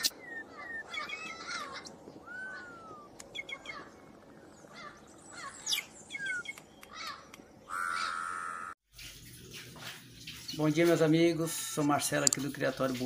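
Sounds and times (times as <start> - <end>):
birds chirping and whistling: 0.0 - 8.8.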